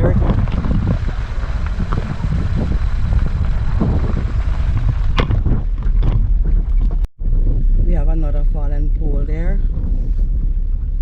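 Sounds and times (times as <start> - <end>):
car driving on road: 0.0 - 11.0
wind buffeting microphone: 0.0 - 11.0.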